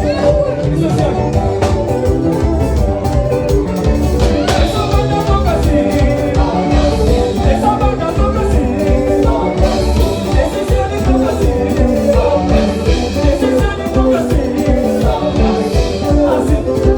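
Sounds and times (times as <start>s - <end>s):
live band playing dance music: 0.0s - 16.9s
person singing: 0.0s - 16.9s
steady drum beat: 0.0s - 16.9s.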